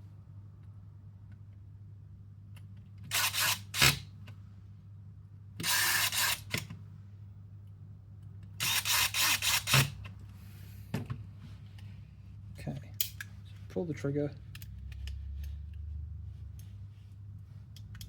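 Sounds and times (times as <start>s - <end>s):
electric screwdriver running: 8.6s - 10.0s.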